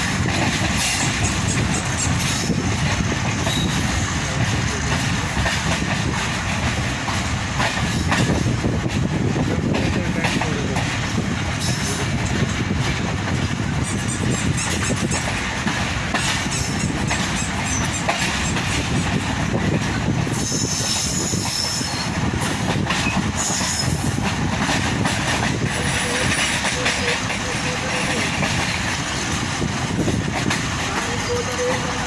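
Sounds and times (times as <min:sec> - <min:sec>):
train wheel and rail rumble: 0:00.0 - 0:32.0
high wheel squeal: 0:03.4 - 0:04.1, 0:20.4 - 0:22.1, 0:25.8 - 0:28.4, 0:30.9 - 0:32.0.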